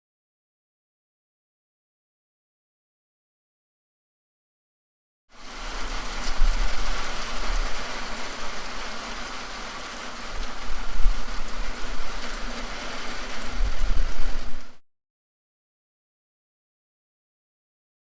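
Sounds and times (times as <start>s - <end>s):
rain falling: 5.3s - 14.8s
wind buffeting microphone: 5.7s - 9.1s, 10.3s - 14.8s.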